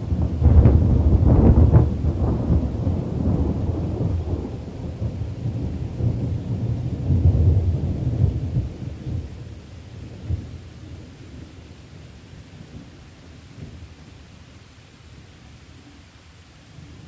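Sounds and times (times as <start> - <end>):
rolling thunder: 0.0 - 11.7
rain: 0.0 - 17.0.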